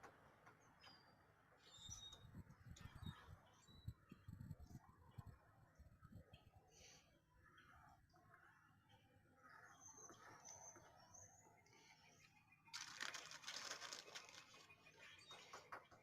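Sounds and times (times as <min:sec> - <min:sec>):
faint high bird chirps: 0:00.8 - 0:04.3
scratchy rustling with clicks: 0:12.8 - 0:14.8.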